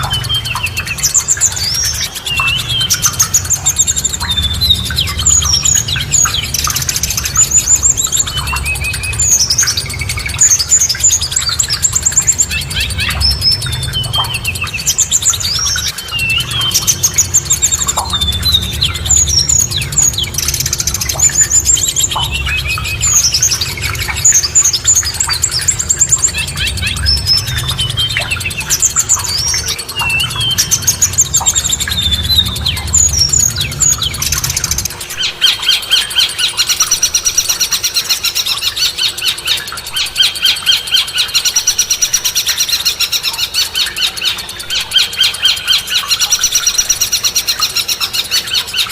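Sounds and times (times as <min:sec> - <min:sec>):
low steady rumble: 0:00.0 - 0:35.3
songbirds singing: 0:00.0 - 0:48.9.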